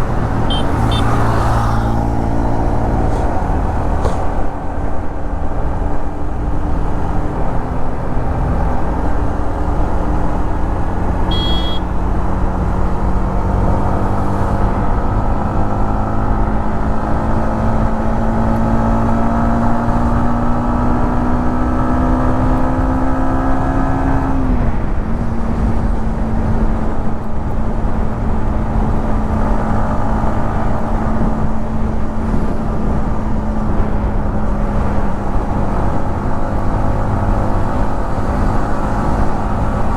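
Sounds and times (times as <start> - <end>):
motorcycle engine and exhaust: 0.0 - 39.9
short high-pitched beep: 0.5 - 1.2, 11.3 - 12.0.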